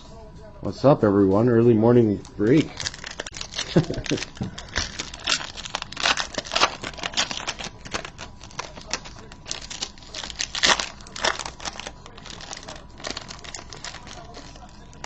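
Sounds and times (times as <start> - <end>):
card pack wrapper crinkling: 2.2 - 15.0.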